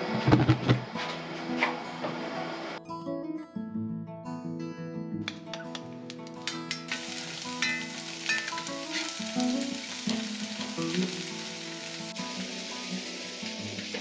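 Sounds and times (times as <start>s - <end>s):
food sizzling in a pan: 6.8s - 14.0s.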